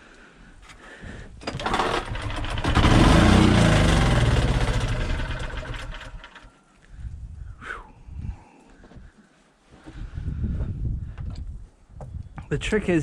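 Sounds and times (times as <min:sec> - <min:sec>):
small generator engine starting: 0:01.4 - 0:06.6.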